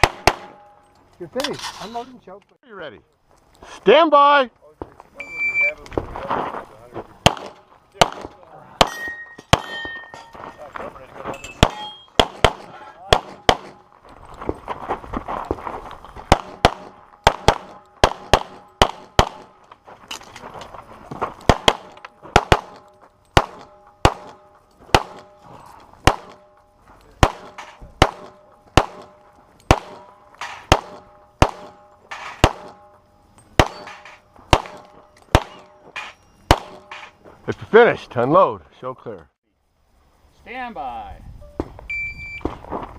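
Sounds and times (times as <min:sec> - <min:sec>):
pistol shots: 0:00.0 - 0:00.8, 0:07.2 - 0:10.0, 0:11.6 - 0:13.8, 0:16.3 - 0:19.6, 0:21.4 - 0:25.4, 0:26.0 - 0:26.6, 0:27.2 - 0:32.9, 0:33.6 - 0:37.2.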